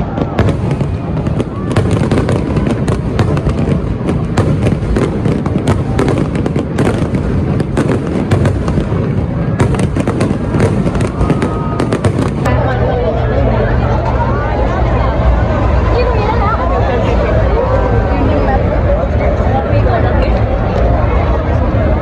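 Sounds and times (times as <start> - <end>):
fireworks crackling bangs: 0.0 - 12.6
fireworks booming: 0.0 - 12.7.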